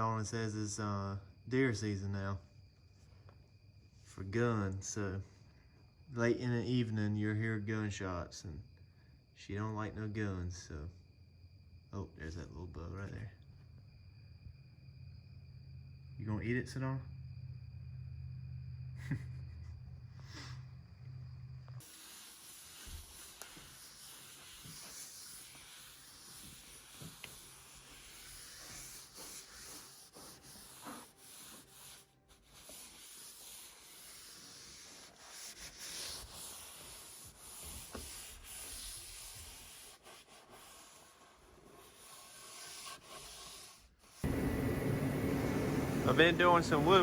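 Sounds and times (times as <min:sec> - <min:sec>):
soft scratching and rubbing: 0:21.8 - 0:47.0.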